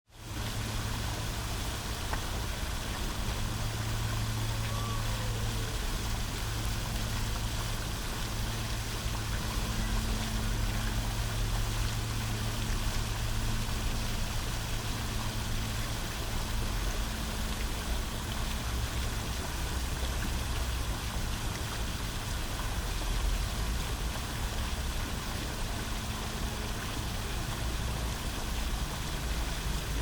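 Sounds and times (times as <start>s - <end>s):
fountain splashing and trickling: 0.1s - 30.0s
low hum: 0.2s - 30.0s.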